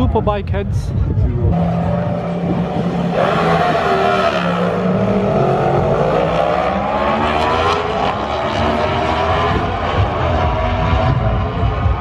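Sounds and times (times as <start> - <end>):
superbike engines at full throttle: 1.0 - 12.0.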